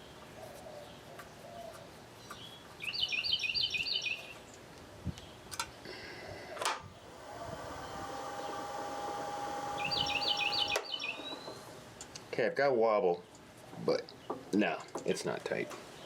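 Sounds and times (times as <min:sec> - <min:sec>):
songbird chirping high notes: 0:09.8 - 0:11.5.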